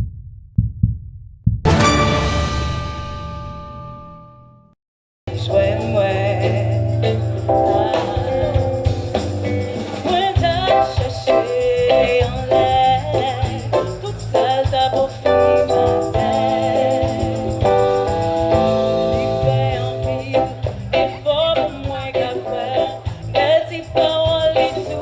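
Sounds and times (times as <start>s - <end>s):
steady bass line: 5.3s - 14.4s, 15.3s - 25.0s
band with lead singer: 5.3s - 25.0s.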